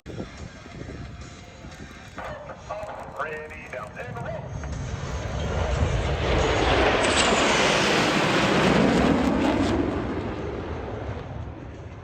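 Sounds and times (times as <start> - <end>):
fighter jet passing by: 3.0 - 12.0.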